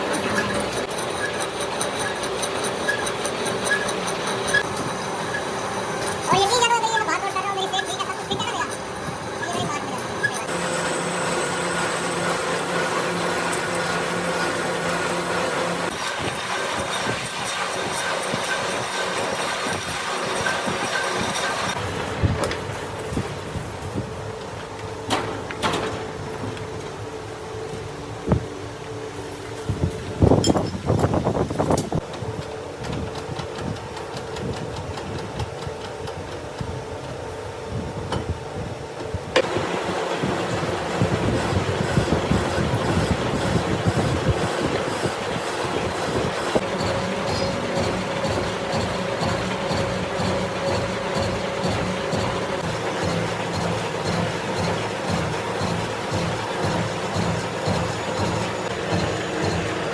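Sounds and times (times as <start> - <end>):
machine tool running: 0.0 - 24.0, 39.4 - 59.9
machine tool humming and ticking: 39.0 - 59.9.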